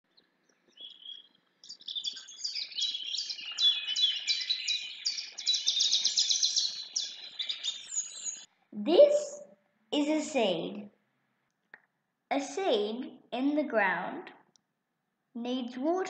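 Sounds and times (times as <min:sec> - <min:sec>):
birds chirping and singing: 0:00.2 - 0:08.5.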